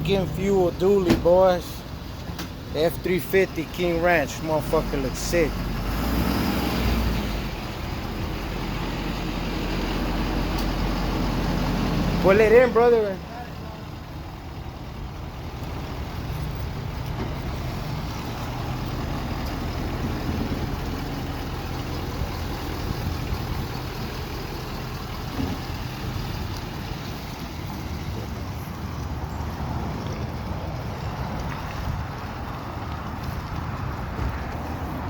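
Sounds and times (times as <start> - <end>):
pickup truck engine running: 7.2 - 35.0.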